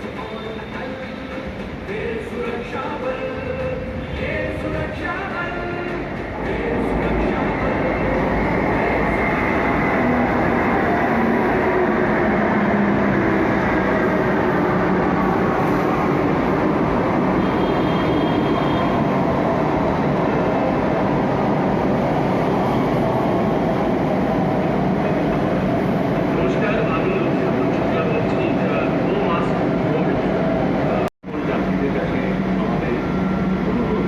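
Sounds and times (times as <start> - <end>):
metro train rumbling past: 0.0 - 34.0.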